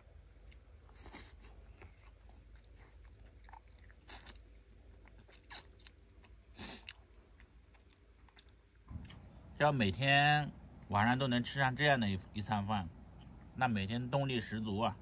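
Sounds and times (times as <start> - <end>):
person chewing food: 0.0 - 9.5
steady low hum: 0.0 - 15.0.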